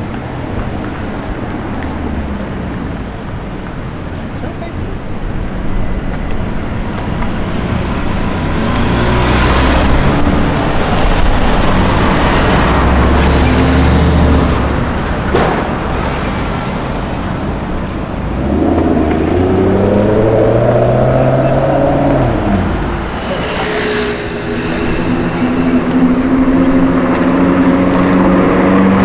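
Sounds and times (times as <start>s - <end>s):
traffic passing on street: 0.0s - 29.0s
engine revving up: 7.5s - 15.0s, 18.3s - 29.0s
sharp crack: 15.2s - 16.0s.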